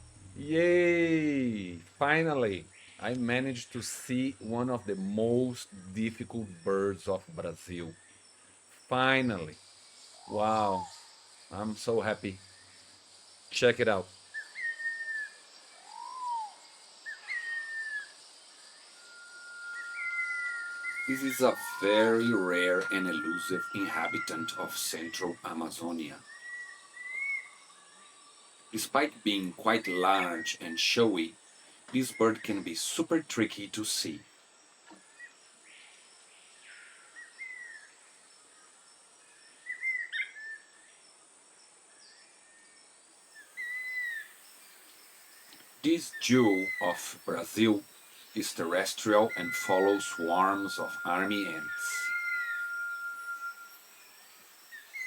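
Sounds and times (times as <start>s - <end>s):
high insect buzz: 0.0s - 55.0s
birds whistling: 14.3s - 27.9s, 28.8s - 31.3s, 32.0s - 32.8s, 39.6s - 40.7s, 43.3s - 55.0s.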